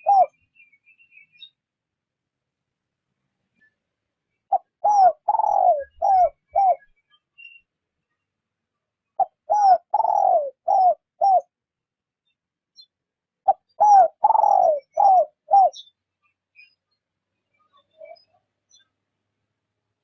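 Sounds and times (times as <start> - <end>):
dove cooing: 0.0 - 0.4, 4.5 - 6.8, 9.2 - 11.5, 13.4 - 15.9.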